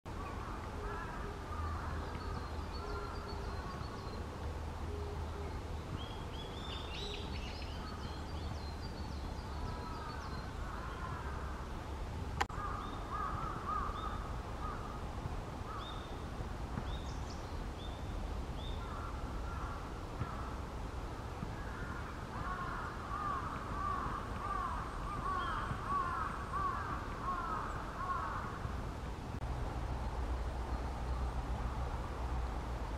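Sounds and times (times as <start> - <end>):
wild birds calling: 0.1 - 11.7, 12.5 - 15.0, 18.6 - 20.6, 21.5 - 28.6.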